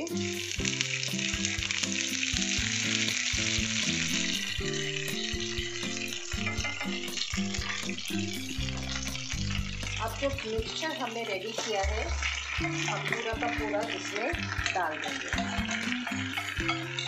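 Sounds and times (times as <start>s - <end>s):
leaves sizzling in hot oil: 0.0s - 17.0s
metal fork stirring in pan: 0.6s - 17.0s.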